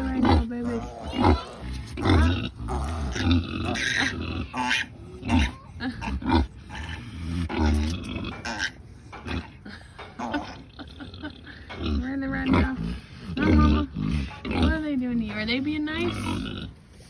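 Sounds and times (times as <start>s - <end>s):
piglets squealing: 0.0s - 7.0s
sow grunting: 0.0s - 16.9s.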